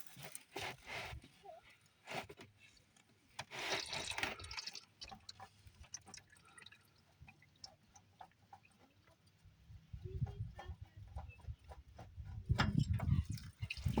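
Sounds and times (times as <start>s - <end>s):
fluid dripping: 3.4s - 9.5s, 12.5s - 14.0s.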